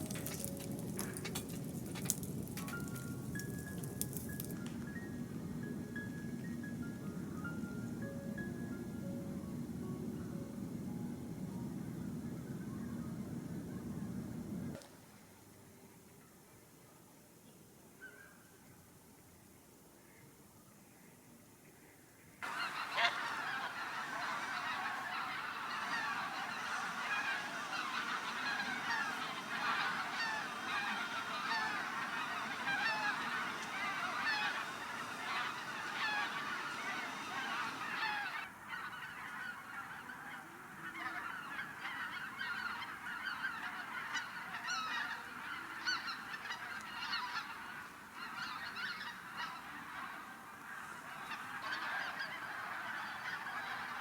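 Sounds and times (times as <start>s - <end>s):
flock of geese honking: 0.0s - 4.8s, 22.4s - 54.0s.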